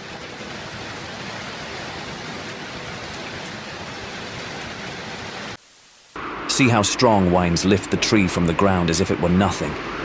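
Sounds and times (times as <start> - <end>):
hailstones ticking: 0.0 - 5.6
heavy rain and hail pouring: 0.0 - 6.2.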